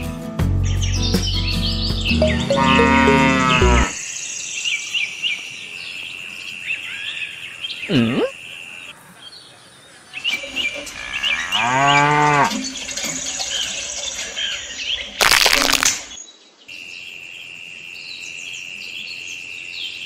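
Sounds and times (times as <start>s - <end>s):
birds chirping: 0.6s - 15.2s
cow mooing: 2.5s - 4.0s, 11.3s - 12.6s.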